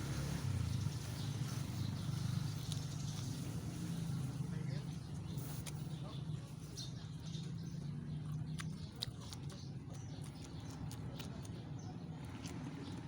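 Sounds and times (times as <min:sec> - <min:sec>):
person chewing crunchy greens: 0:05.3 - 0:13.0.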